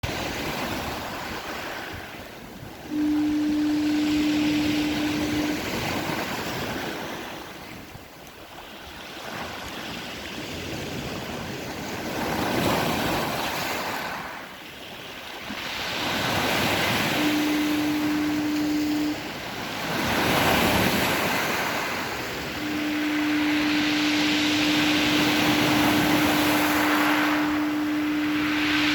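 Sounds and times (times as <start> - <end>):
heavy surf: 0.0 - 7.9, 11.2 - 28.9
foghorn: 2.6 - 8.0, 15.5 - 28.9.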